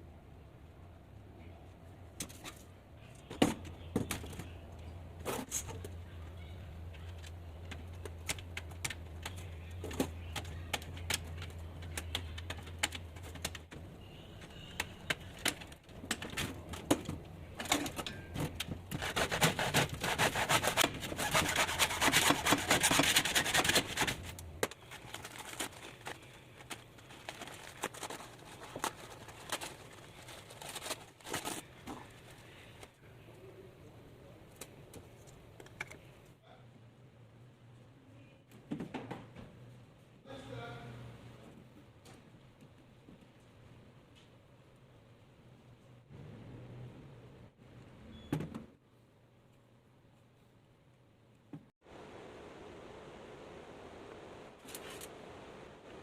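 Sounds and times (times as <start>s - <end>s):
rapid scraping: 18.8s - 31.7s.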